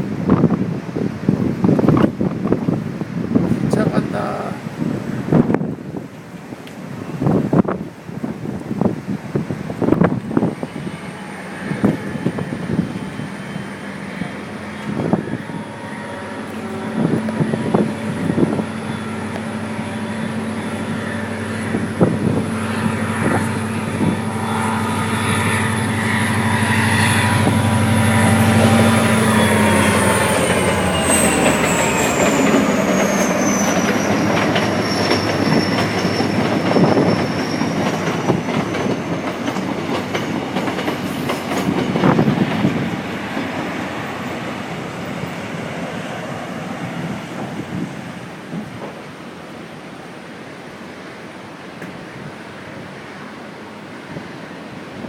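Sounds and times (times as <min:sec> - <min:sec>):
high thin wheel squeal: 0:10.4 - 0:39.5.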